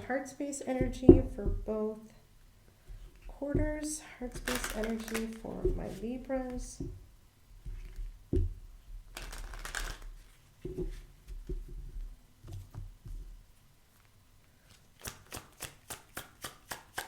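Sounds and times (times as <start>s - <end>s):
cards rustling and sliding: 4.4s - 5.4s, 9.2s - 10.4s
quick card slaps: 15.0s - 17.0s.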